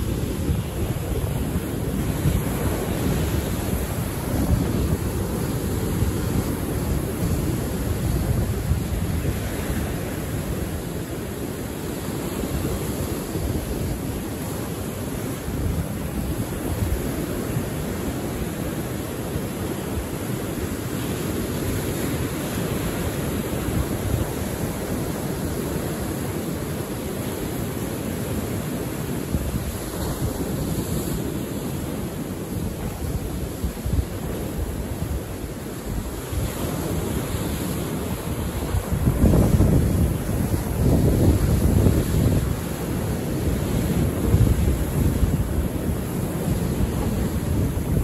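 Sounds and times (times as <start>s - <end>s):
wind buffeting microphone: 0.0s - 11.1s, 32.4s - 48.0s
sea surf on shore: 0.0s - 48.0s.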